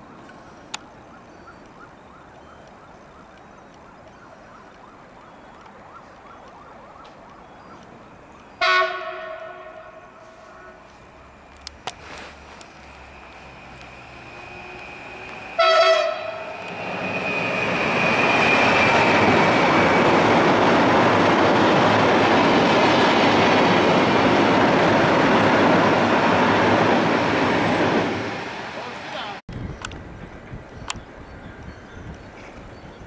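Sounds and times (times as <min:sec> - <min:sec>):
train horn blast: 0:08.6 - 0:11.0, 0:14.0 - 0:16.7
train wheels rumbling on rails: 0:09.1 - 0:32.9
thin high whine: 0:09.9 - 0:20.1.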